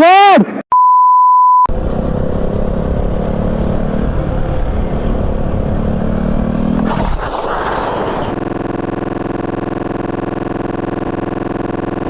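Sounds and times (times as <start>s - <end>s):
motorcycle engine under throttle: 1.7s - 7.3s, 8.2s - 12.0s.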